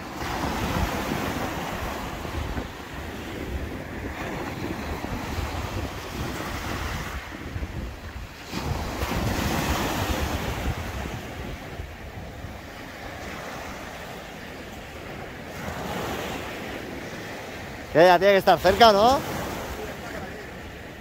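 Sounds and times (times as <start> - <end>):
small waves washing on sand: 0.0 - 21.0
wind buffeting microphone: 0.0 - 21.0.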